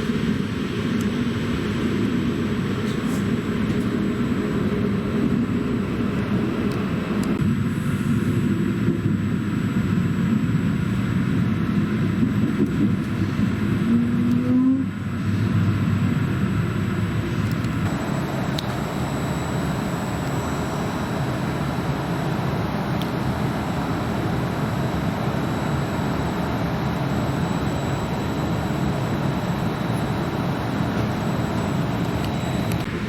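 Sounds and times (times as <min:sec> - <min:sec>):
short low whine: 0:25.1 - 0:33.0.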